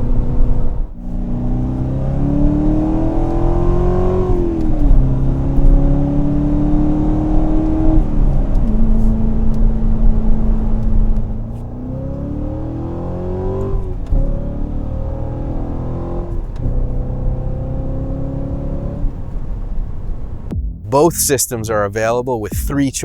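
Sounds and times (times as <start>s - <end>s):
car engine accelerating: 0.0s - 22.6s.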